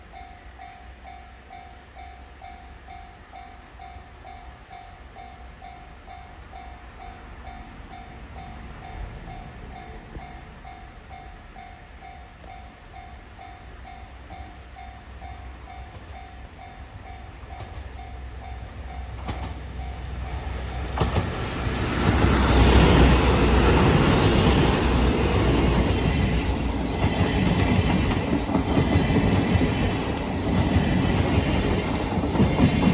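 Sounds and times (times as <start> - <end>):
diesel train passing: 3.7 - 32.9
wheels clacking over rail joints: 19.2 - 32.9.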